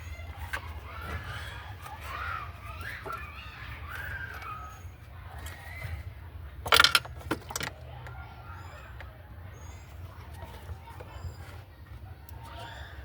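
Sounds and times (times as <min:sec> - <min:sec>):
metal tools clinking: 0:06.6 - 0:07.8
metallic clatter: 0:06.6 - 0:07.8.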